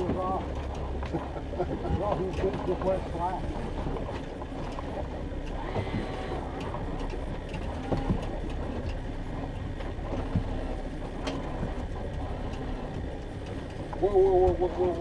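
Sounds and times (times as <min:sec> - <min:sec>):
boat motor rumbling: 0:00.0 - 0:15.0
water noise: 0:00.0 - 0:15.0
wind: 0:00.0 - 0:15.0.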